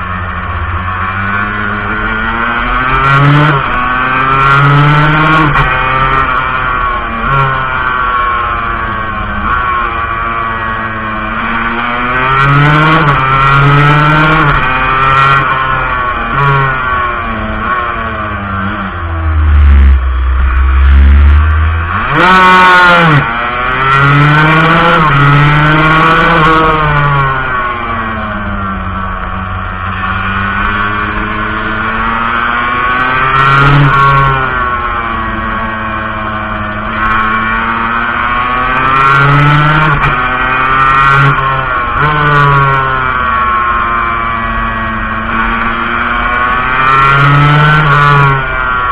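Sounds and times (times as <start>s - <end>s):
two-stroke motorcycle engine revving: 0.0s - 48.9s
loud low rumble: 18.1s - 22.4s.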